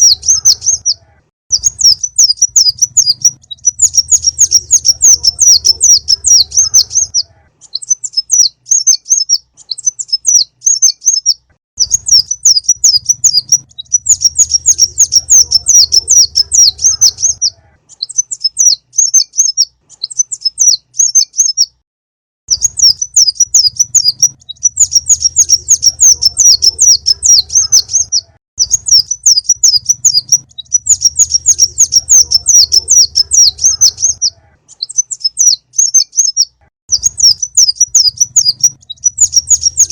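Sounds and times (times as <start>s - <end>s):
bird chirping trills: 0.0s - 21.8s, 22.5s - 39.9s.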